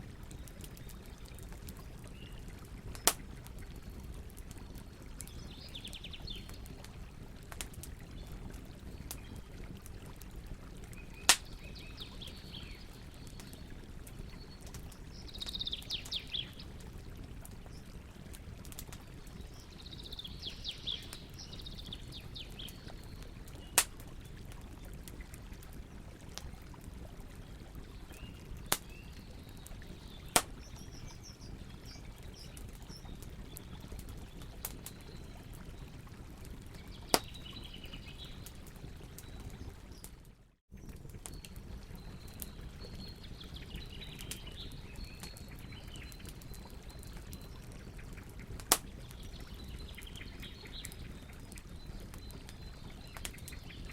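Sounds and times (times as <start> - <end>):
fire popping: 0.0 - 40.2, 40.8 - 53.9
campfire crackling: 0.0 - 53.9
flowing water: 0.0 - 53.9
birds chirping: 10.9 - 16.7, 19.1 - 23.8.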